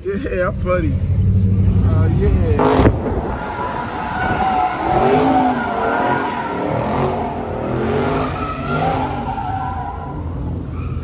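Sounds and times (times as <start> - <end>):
car tires squealing: 2.6 - 11.0.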